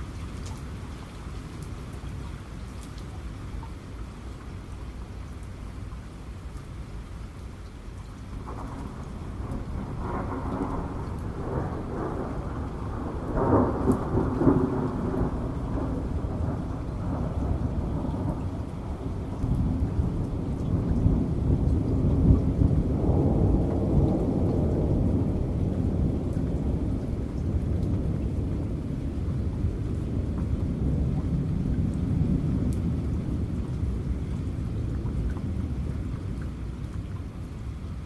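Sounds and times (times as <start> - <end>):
steady rain: 0.0 - 38.0
thunder rumbling: 8.4 - 37.0.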